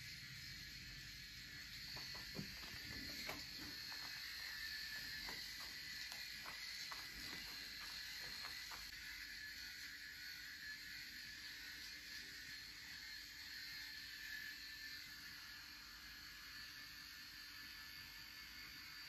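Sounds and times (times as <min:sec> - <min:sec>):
electric shaver running: 0:00.0 - 0:19.0
crackling clicks: 0:01.8 - 0:08.9.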